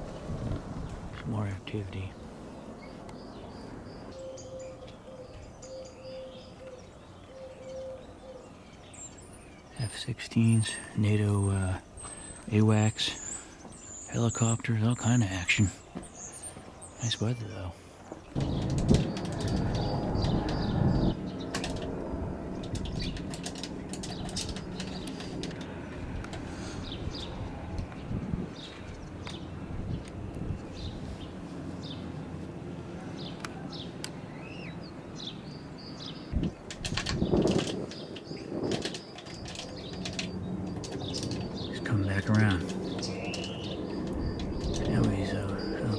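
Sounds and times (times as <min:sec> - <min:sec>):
birds chirping: 0:00.0 - 0:45.9
bird cooing: 0:04.1 - 0:08.6
helicopter rotor beat and turbine: 0:18.4 - 0:31.7, 0:38.9 - 0:45.9
faint low rumble: 0:18.4 - 0:32.0.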